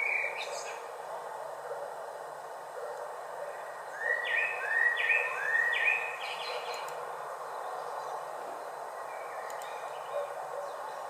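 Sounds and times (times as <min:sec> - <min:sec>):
steady background noise: 0:00.0 - 0:11.0
songbird whistling: 0:04.0 - 0:06.8.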